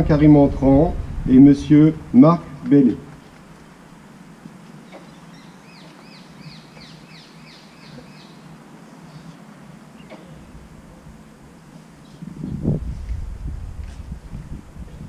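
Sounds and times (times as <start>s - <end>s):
outdoor background noise: 0.0s - 15.0s
bird calling: 4.7s - 10.6s.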